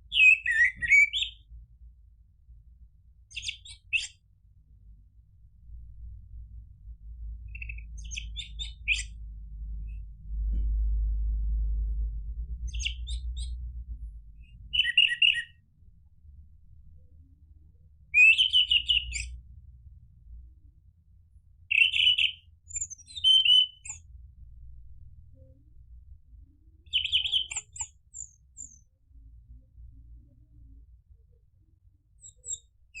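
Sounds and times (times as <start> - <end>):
low rumble: 4.8 - 14.8, 24.0 - 26.8.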